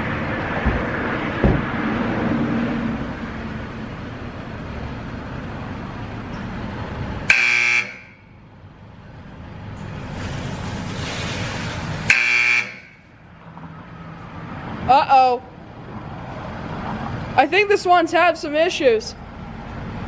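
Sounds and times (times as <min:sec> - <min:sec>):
electronic buzzer blasts: 0:07.3 - 0:08.2, 0:12.1 - 0:13.0
car wash equipment hissing: 0:09.8 - 0:13.2.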